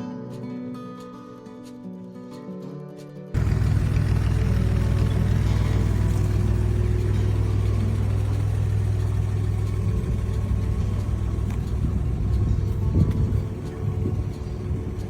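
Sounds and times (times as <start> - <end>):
car engine idling: 3.4 - 15.0.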